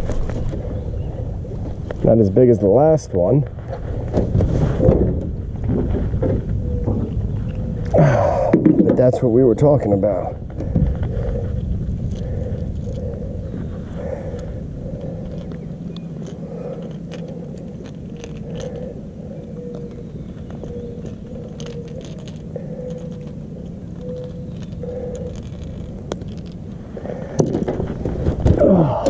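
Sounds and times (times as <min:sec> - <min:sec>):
low rumble: 0:00.0 - 0:29.0.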